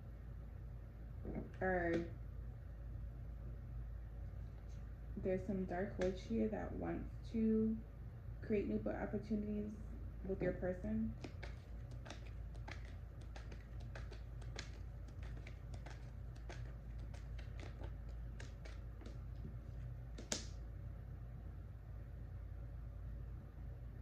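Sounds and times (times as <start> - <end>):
steady low hum: 0.0 - 24.0
light clicking and tapping: 11.1 - 20.6.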